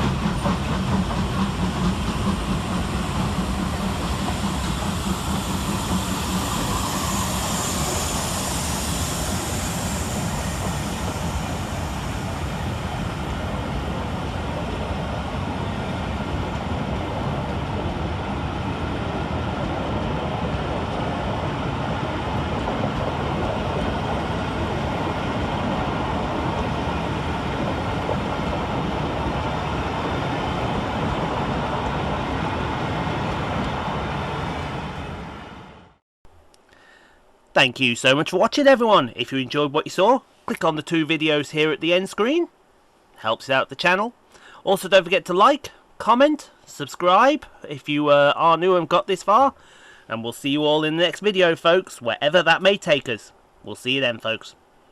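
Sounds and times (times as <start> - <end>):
steam hiss: 0.0 - 14.1
train wheels rumbling on track: 0.0 - 36.0.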